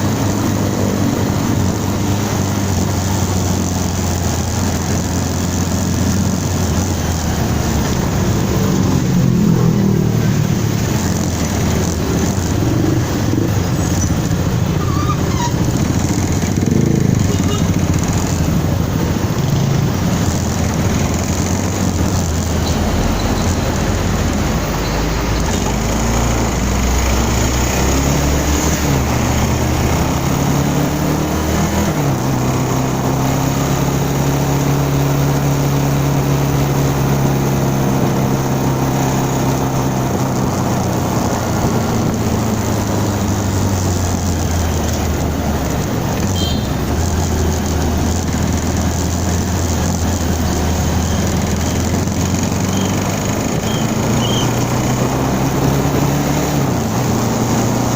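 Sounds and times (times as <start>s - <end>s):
motorcycle engine: 0.0s - 57.9s
wind noise: 36.9s - 49.6s.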